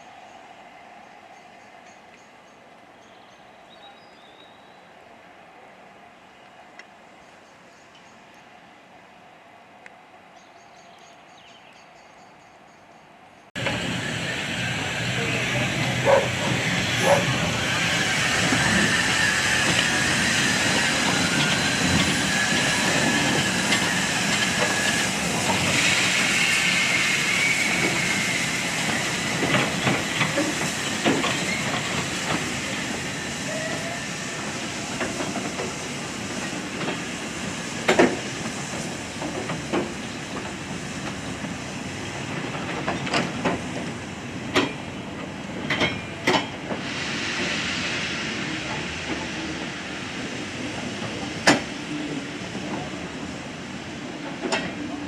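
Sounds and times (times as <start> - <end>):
steam train rumbling: 13.5 - 55.0
steam hissing: 13.6 - 55.0.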